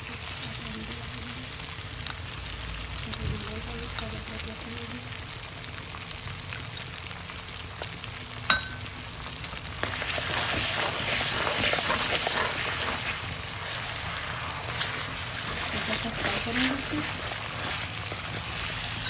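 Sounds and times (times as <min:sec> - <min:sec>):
paste sizzling in hot oil: 0:00.0 - 0:19.0
metallic clink: 0:08.5 - 0:08.8.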